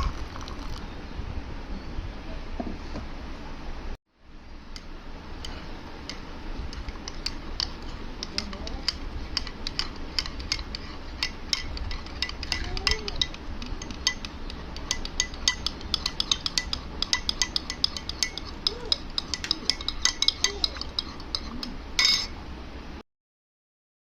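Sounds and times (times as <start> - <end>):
teaspoon clinking in coffee cup: 6.1 - 22.3.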